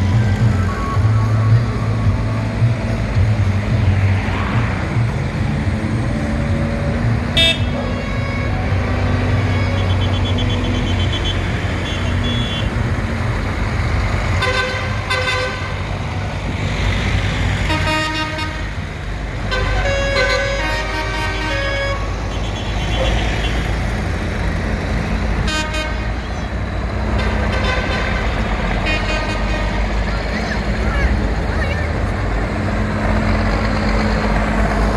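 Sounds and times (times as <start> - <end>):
tractor engines running: 0.0 - 34.9
horns tooting: 6.8 - 13.1, 14.2 - 16.2, 17.5 - 24.0, 25.3 - 32.2.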